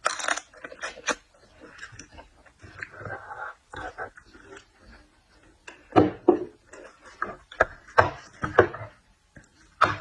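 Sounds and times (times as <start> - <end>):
crunching while eating seafood: 0.0 - 2.2.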